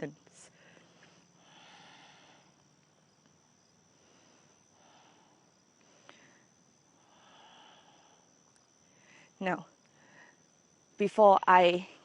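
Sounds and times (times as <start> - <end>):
slow deep breath: 0.4 - 2.8, 3.8 - 10.5.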